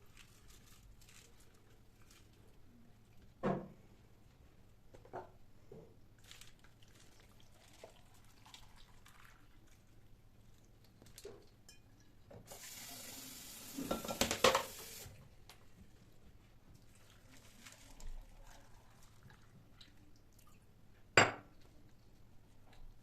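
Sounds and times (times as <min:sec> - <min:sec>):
water running into sink: 0:12.5 - 0:15.1
knocks and splashes under tap: 0:13.7 - 0:14.9.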